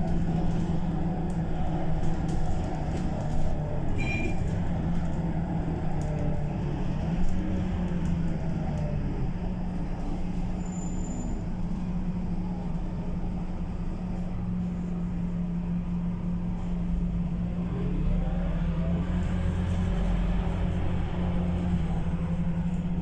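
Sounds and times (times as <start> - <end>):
bus diesel engine running: 0.0 - 23.0.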